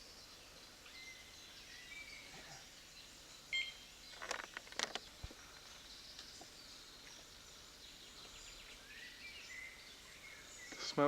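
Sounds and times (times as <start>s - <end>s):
faint birds chirping: 0.0s - 11.0s
short electronic beep: 3.6s - 3.8s.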